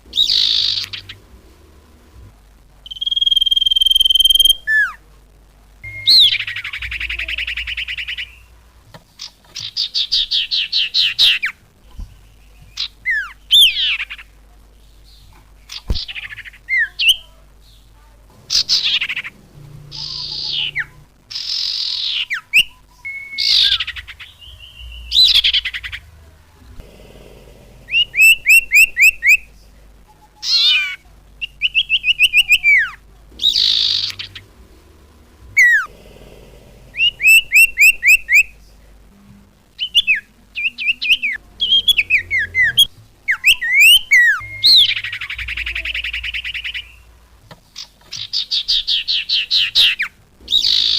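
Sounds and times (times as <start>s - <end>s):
harsh hissy bird notes: 0.0s - 5.1s, 5.8s - 47.2s, 47.8s - 50.9s
clear bird chirps: 0.1s - 1.2s, 2.8s - 5.0s, 5.8s - 8.6s, 27.9s - 29.4s, 30.1s - 34.6s, 36.9s - 38.5s, 39.8s - 47.1s.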